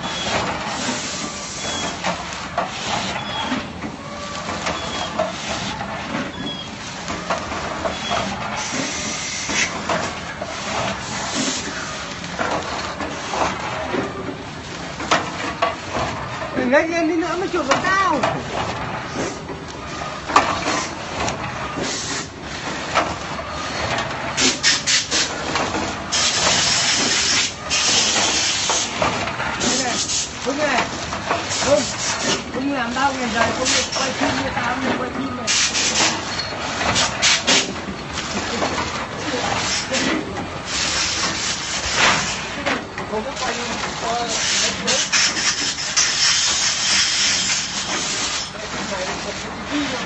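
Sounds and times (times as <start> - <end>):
packaging machine clattering: 0.0 - 50.0.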